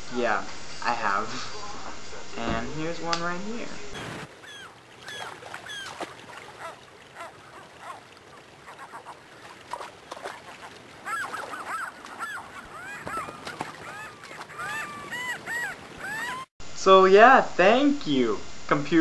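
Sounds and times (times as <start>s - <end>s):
flock of birds calling: 4.0s - 16.5s.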